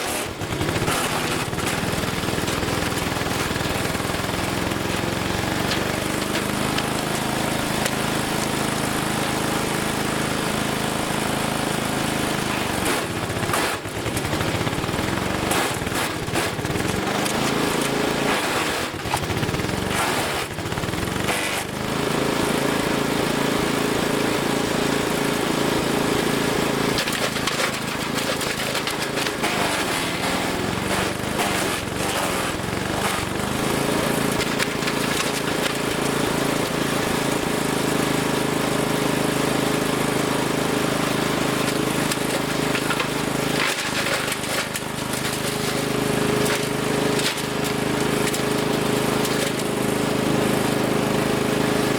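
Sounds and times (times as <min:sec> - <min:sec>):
wood chipper engine under load: 0:00.0 - 0:51.9
wood cracking and knocking: 0:27.0 - 0:33.7, 0:41.7 - 0:48.6.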